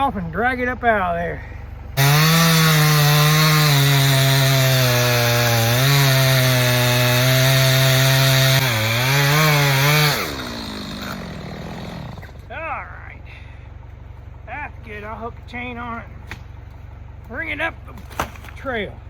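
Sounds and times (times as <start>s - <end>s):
chainsaw cutting wood: 2.0s - 12.5s.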